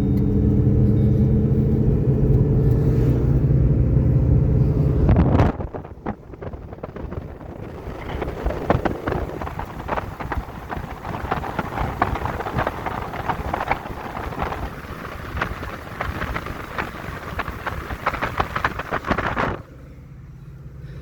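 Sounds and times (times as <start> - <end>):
car engine and road rumble: 0.0 - 21.0
rushing noise: 1.0 - 19.8
sharp ticks and rattles: 5.6 - 19.6.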